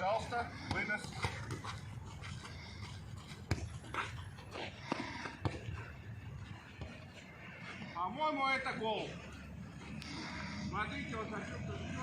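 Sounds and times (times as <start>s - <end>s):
panting breath: 0.2s - 6.3s.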